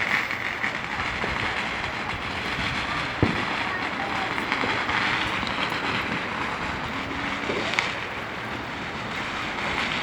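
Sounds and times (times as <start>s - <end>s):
sharp firework pop: 0.0s - 3.5s
fireworks hissing: 0.0s - 10.0s.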